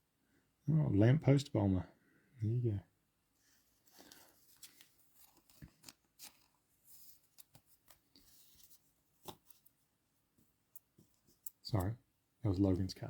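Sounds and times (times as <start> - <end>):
trading cards being handled: 3.8 - 9.8, 10.8 - 11.9.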